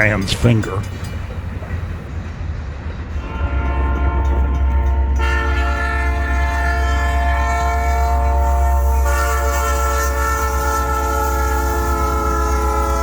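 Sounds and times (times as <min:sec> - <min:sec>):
locomotive low rumble: 0:00.0 - 0:13.0
locomotive air horn: 0:03.2 - 0:13.0.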